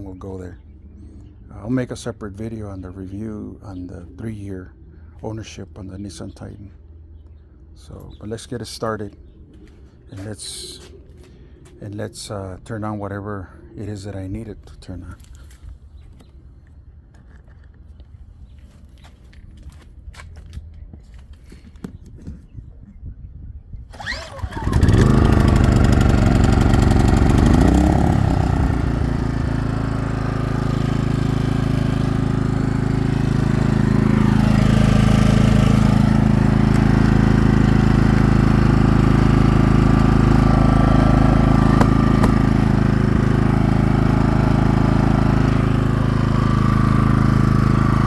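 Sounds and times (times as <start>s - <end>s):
generator running: 23.9s - 48.0s.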